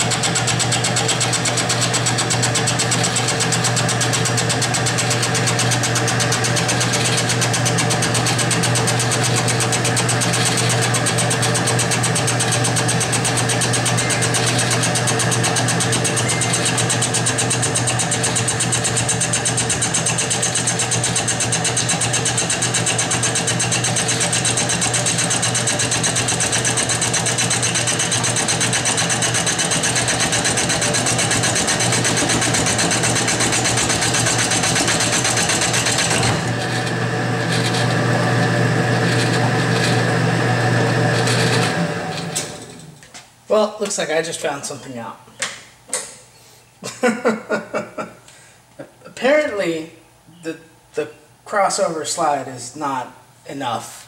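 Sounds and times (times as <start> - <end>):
mill motor hum: 0.0 - 43.0.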